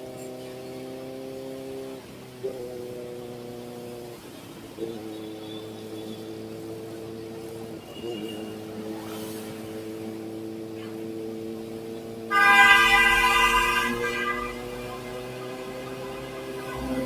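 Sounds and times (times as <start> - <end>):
motorcycle engine running: 0.0 - 17.0
loud vehicle horn: 12.3 - 17.0.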